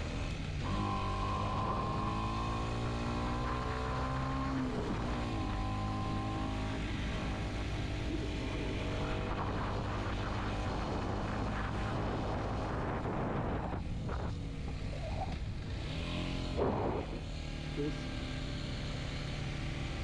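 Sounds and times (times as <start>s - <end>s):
motorcycle engine running: 0.0s - 20.0s
wind rushing over microphone: 1.4s - 17.2s.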